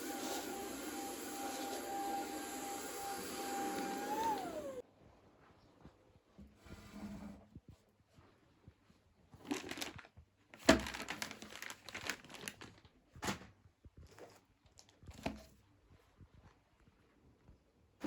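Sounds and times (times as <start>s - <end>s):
crinkly material rustling: 7.8s - 17.4s.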